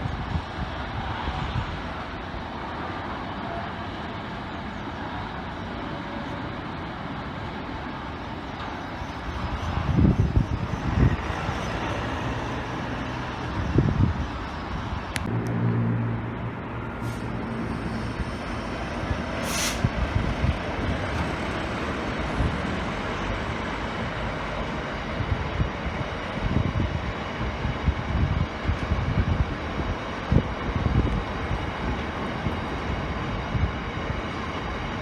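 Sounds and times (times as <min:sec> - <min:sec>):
train rumbling and humming: 0:00.0 - 0:35.0
air brakes hissing: 0:16.8 - 0:23.1.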